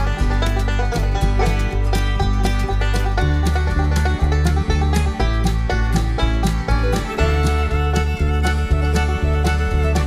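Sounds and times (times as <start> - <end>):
upbeat bluegrass tune: 0.0 - 10.0.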